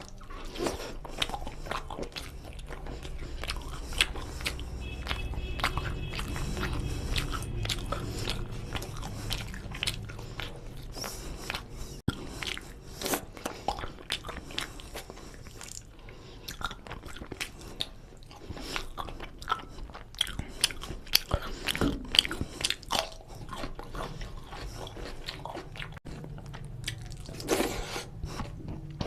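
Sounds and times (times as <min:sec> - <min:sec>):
wet mouth clicks and smacks: 0:00.0 - 0:15.9
man chewing food: 0:00.0 - 0:29.0.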